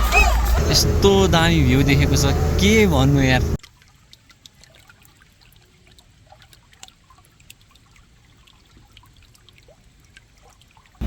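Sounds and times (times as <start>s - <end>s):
low steady rumble: 0.0s - 3.6s
trickle of running water: 3.6s - 11.0s
water drips and splashes: 3.6s - 11.0s.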